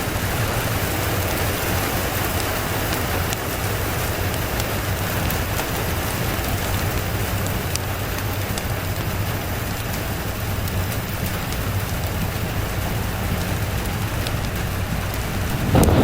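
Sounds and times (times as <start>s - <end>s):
steady rain: 0.0s - 16.0s
low steady rumble: 12.5s - 16.0s.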